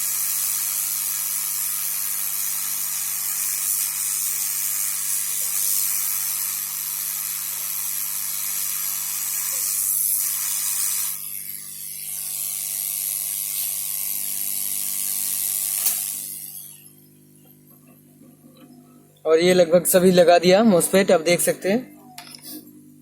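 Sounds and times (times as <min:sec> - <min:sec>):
hot-air gun hissing: 0:00.0 - 0:17.5
sharp click: 0:15.8 - 0:16.1.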